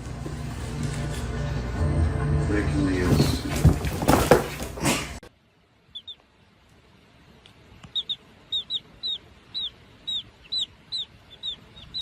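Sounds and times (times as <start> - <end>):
bird chirping: 5.8 - 6.3, 7.8 - 12.0.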